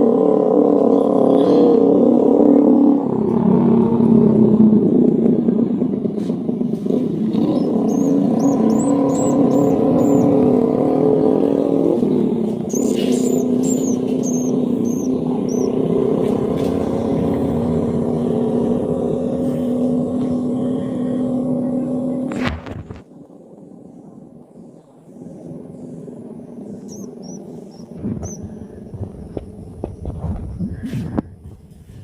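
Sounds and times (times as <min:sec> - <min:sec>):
low machine drone: 0:00.0 - 0:32.0
swiftlets chirping: 0:07.4 - 0:10.6, 0:12.5 - 0:16.4.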